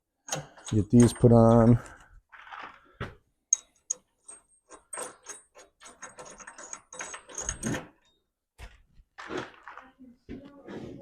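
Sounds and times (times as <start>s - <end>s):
metallic clicks and clinks of bolts: 0.2s - 2.0s, 3.5s - 8.2s.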